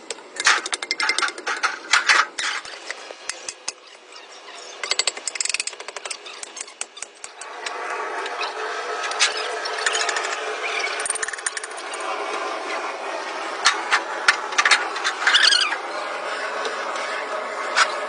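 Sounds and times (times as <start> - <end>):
steady machine noise: 4.8 - 18.0.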